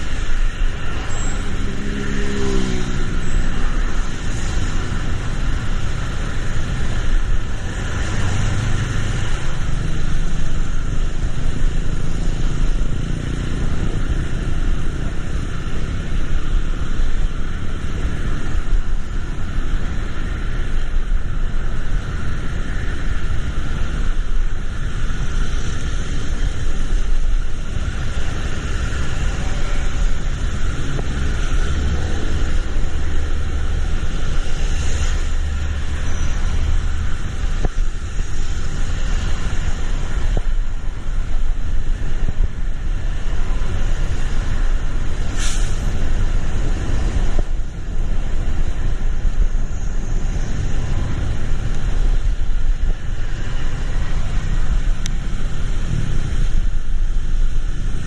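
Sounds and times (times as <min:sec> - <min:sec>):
rain: 0:00.0 - 0:58.0
tyres on wet road: 0:00.0 - 0:58.0
brief hiss: 0:45.3 - 0:45.8.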